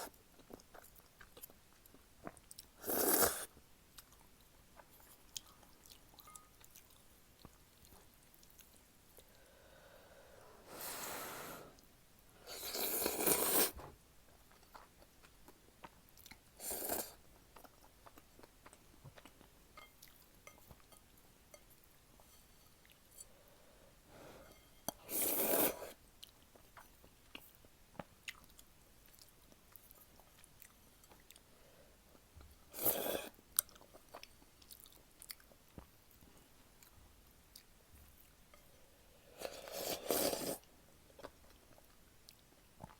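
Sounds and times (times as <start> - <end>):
quiet chewing: 0.0 - 9.5, 12.5 - 23.3, 24.5 - 31.5, 32.1 - 42.9
loud noodle slurps: 2.8 - 3.5, 12.5 - 13.8, 25.0 - 26.0, 39.4 - 40.6.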